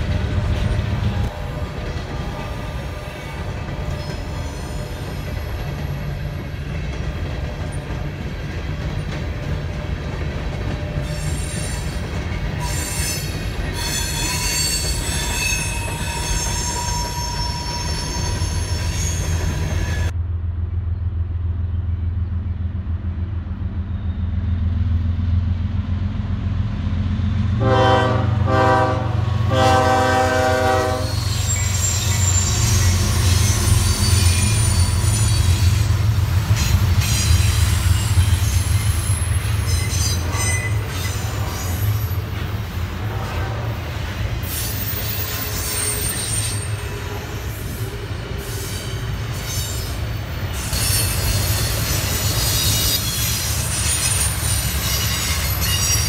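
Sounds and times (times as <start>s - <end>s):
freight cars rolling on rails: 0.0s - 20.2s, 27.6s - 56.0s
diesel locomotive engine rumble: 0.0s - 56.0s
wheel squeal: 12.6s - 20.1s, 31.1s - 36.0s, 37.0s - 42.2s, 44.4s - 56.0s
train air horn blasts: 27.6s - 31.7s, 43.0s - 44.0s.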